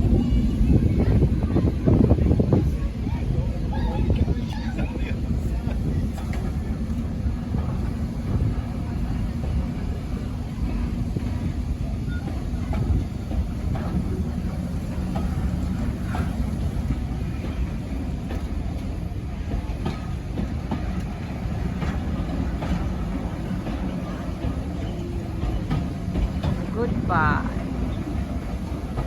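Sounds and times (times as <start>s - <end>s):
railway carriage rumbling: 0.0s - 29.0s
wheels clicking over rails: 4.1s - 29.0s.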